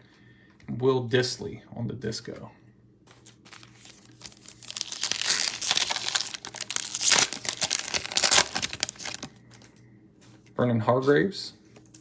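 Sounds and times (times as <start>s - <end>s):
foil wrapper tearing and crinkling: 3.2s - 9.6s.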